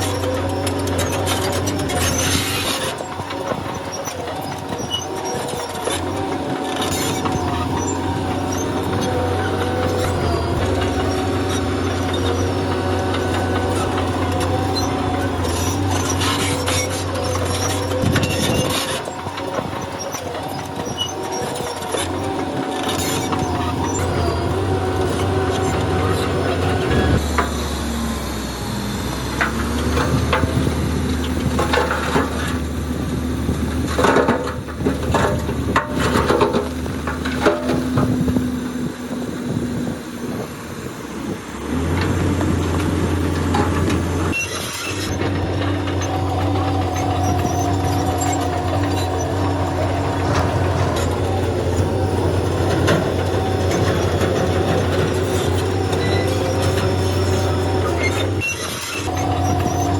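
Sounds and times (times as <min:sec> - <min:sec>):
steel tracks clanking: 0:00.0 - 0:27.8, 0:41.9 - 0:59.9
bulldozer diesel engine: 0:00.0 - 0:59.9.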